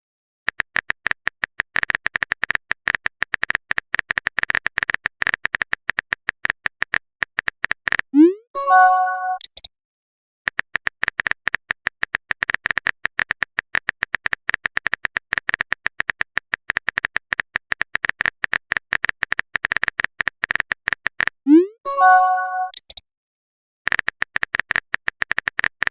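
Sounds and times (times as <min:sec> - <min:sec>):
phone keyboard clicking: 0:00.5 - 0:08.1, 0:10.5 - 0:21.4, 0:23.9 - 0:25.9.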